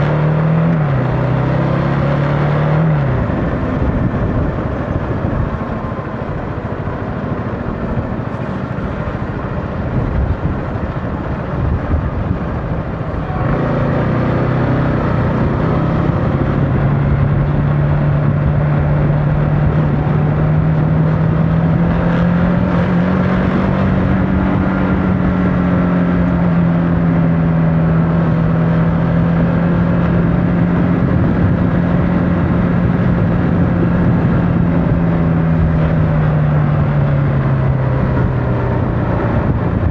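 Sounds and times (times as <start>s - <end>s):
motorcycle engine hum: 0.0s - 39.9s
wind rush over microphone: 0.0s - 39.9s.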